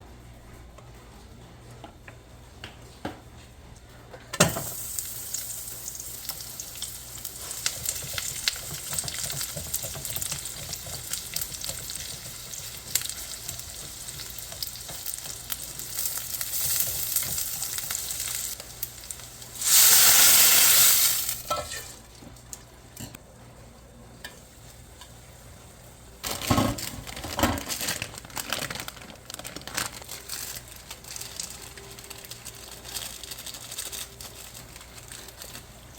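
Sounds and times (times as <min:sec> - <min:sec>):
food sizzling in a pan: 0:04.5 - 0:22.0.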